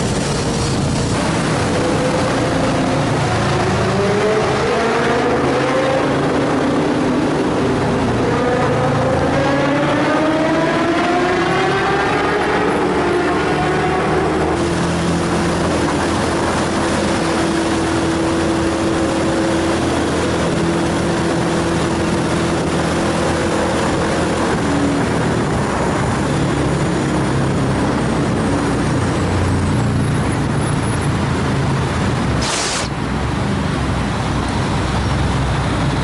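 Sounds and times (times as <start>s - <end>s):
wind and road noise: 0.0s - 36.0s.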